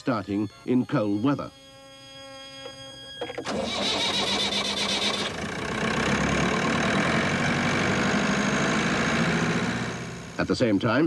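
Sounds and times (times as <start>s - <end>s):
starter cranking: 3.1s - 6.0s
car engine running: 3.2s - 11.0s.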